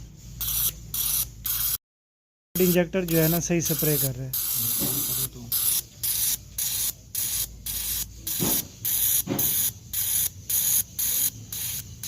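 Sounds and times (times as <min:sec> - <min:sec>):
fuel injectors spraying hissing bursts: 0:02.6 - 0:12.0.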